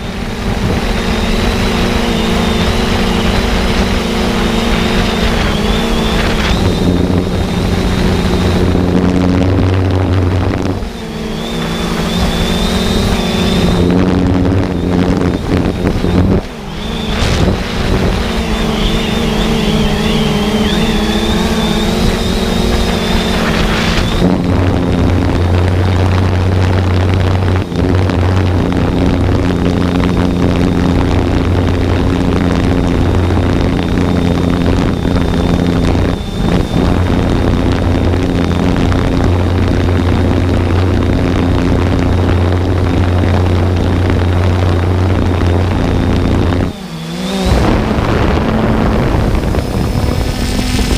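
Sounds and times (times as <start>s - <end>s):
drone propellers whirring: 0.0s - 50.9s
high wavering whine: 0.0s - 50.9s
steady low hum: 0.0s - 50.9s.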